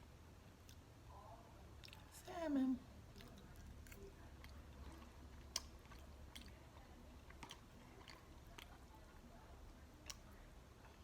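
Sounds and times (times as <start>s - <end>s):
chewing food: 1.7s - 11.0s
wet mouth clicks: 5.4s - 6.6s.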